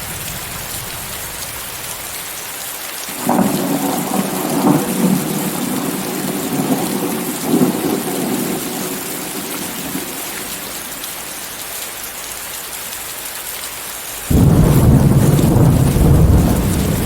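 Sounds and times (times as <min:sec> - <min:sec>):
heavy rain: 0:00.0 - 0:17.0
thunder rumbling: 0:03.2 - 0:10.4, 0:14.3 - 0:17.0.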